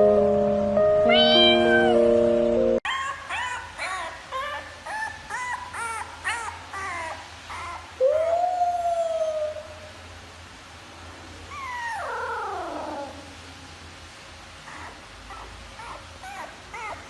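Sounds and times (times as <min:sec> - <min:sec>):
puppy howling: 0:01.0 - 0:02.0, 0:02.8 - 0:09.9, 0:11.5 - 0:13.4, 0:14.7 - 0:17.0
puppy whining: 0:01.0 - 0:02.1, 0:02.8 - 0:09.9, 0:11.5 - 0:13.4, 0:14.6 - 0:17.0.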